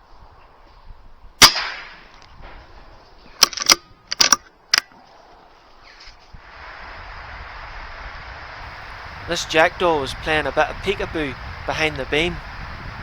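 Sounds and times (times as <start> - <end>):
air rifle shot: 1.4 - 2.1
metallic clicks and knocks: 3.4 - 4.9.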